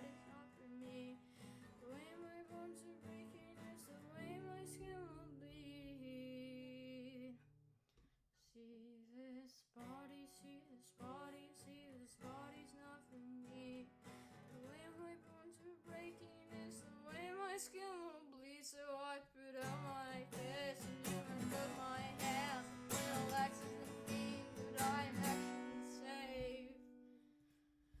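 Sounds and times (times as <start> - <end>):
acoustic guitar chords: 0.0 - 5.4, 19.6 - 27.3
person singing with vibrato: 19.6 - 26.9.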